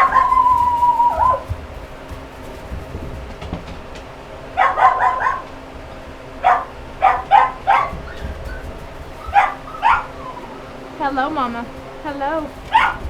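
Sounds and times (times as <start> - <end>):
dog yelping: 0.0 - 1.6, 4.5 - 5.6, 6.3 - 10.8, 12.6 - 13.0.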